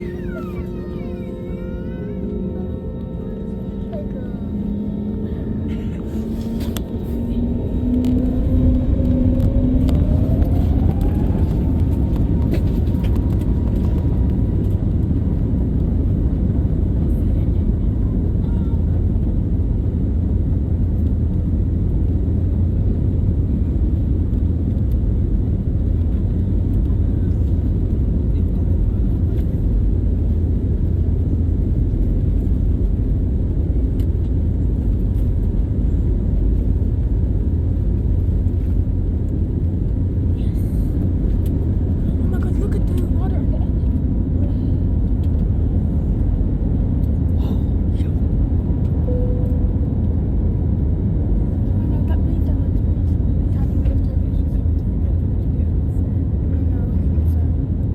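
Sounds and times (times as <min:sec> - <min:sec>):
airplane cabin rumble: 0:00.0 - 0:57.9
short faint tone: 0:49.1 - 0:50.1.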